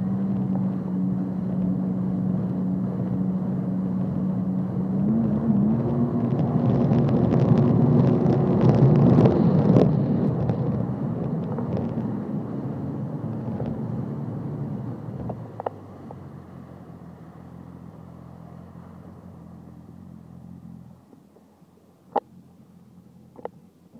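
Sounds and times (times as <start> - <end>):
water noise: 0.0 - 12.5
jet ski engine running: 0.0 - 23.9.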